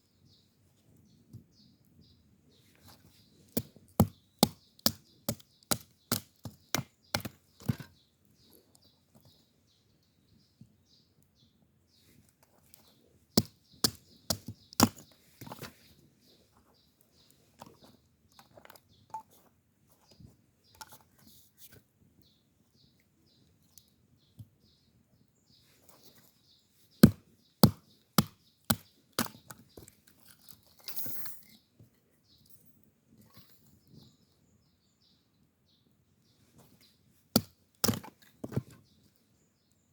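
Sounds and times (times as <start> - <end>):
sharp chopping strikes: 27.0 - 29.3, 37.4 - 38.1
faint bird chirps: 30.8 - 37.0.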